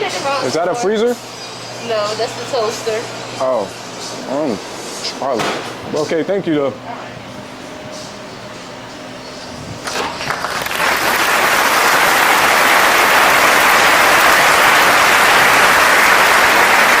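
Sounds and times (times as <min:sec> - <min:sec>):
crowd applause: 0:10.2 - 0:17.0.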